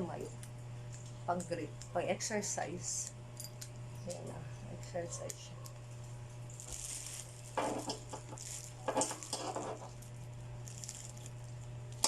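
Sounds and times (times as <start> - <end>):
steady low hum: 0.0 - 12.0
household items rustling and clattering: 6.5 - 11.4.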